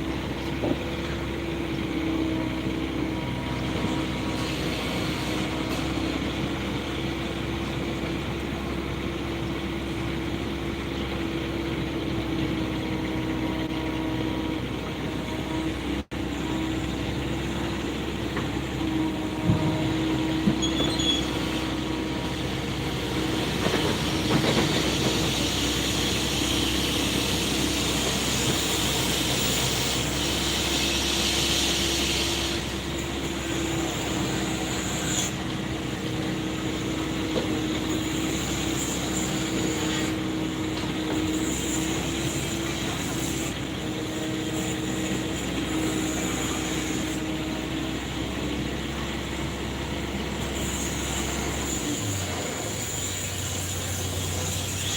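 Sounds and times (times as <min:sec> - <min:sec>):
excavator engine humming: 0:00.0 - 0:54.9
hiss: 0:24.0 - 0:35.3.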